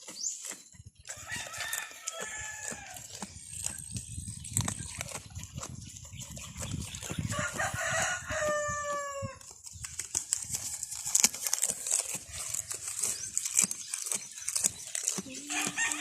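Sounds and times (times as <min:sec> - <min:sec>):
goat chewing leaves: 0:00.0 - 0:16.0
leaves rustling: 0:00.0 - 0:16.0
rooster crowing: 0:01.2 - 0:03.0, 0:07.3 - 0:09.4, 0:15.5 - 0:16.0.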